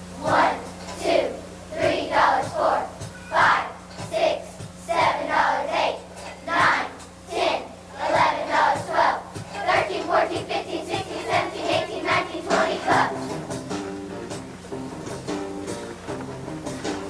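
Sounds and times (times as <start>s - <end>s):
instrumental music: 9.4s - 17.0s.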